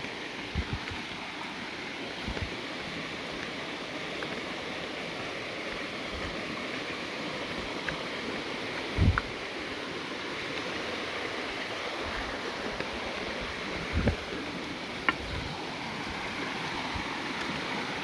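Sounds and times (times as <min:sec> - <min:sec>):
running water rushing: 0:00.0 - 0:18.0
soft low bumps: 0:00.5 - 0:01.0, 0:08.8 - 0:09.4.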